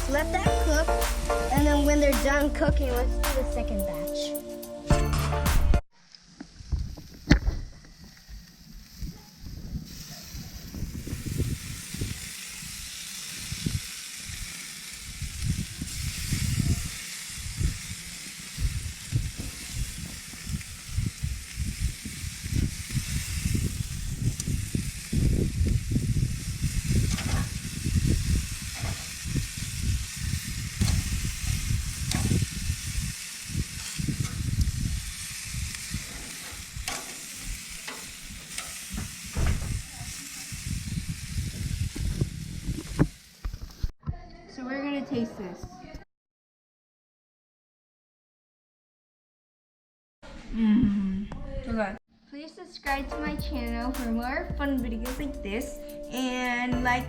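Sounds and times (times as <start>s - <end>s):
skewers sizzling on a grill: 0.0s - 2.7s, 8.0s - 43.9s.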